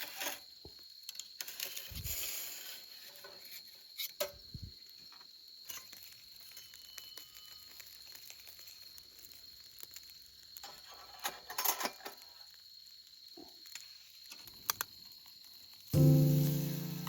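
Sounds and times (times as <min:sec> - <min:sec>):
faint high-pitched tone: 0:16.0 - 0:17.0.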